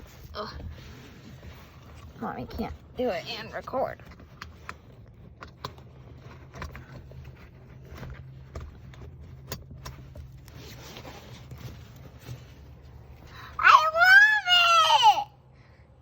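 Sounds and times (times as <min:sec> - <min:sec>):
harness straps and buckles clicking: 0:03.9 - 0:11.7.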